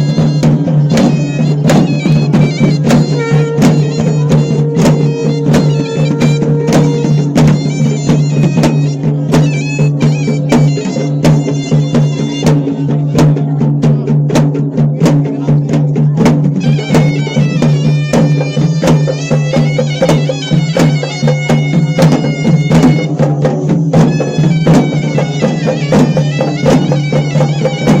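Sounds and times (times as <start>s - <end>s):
bagpipe-like melody: 0.0s - 13.2s, 16.6s - 23.4s, 24.0s - 28.0s
drum strokes: 0.0s - 28.0s.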